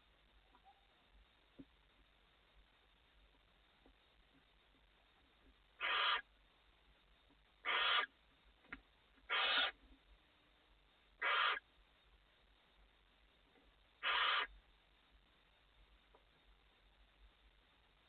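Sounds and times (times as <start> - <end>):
owl hissing screech calls: 5.8 - 6.3, 7.6 - 8.1, 9.3 - 9.8, 11.2 - 11.6, 14.0 - 14.5.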